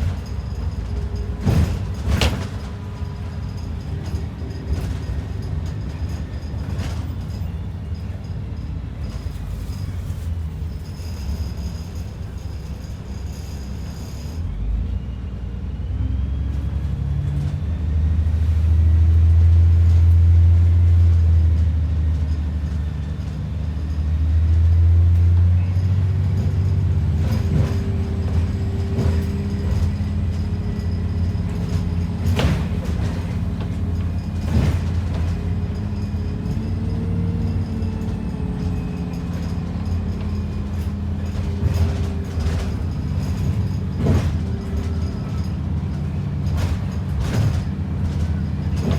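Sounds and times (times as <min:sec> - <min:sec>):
bus diesel engine rumble: 0:00.0 - 0:48.9
body knocks and rattles: 0:27.2 - 0:37.4.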